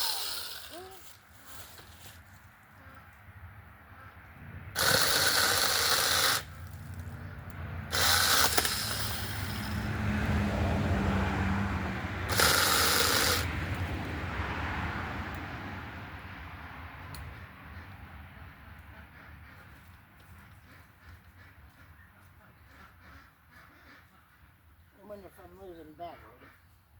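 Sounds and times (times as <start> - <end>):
mini chainsaw cutting branches: 0.0 - 2.1, 4.8 - 7.1, 7.9 - 10.0, 12.2 - 13.9.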